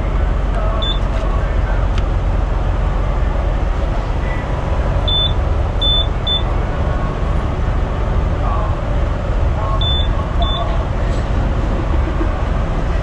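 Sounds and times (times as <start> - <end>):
diesel truck engine idling: 0.0 - 13.0
short high-pitched beeps: 0.8 - 1.1, 5.1 - 6.5, 9.8 - 10.7.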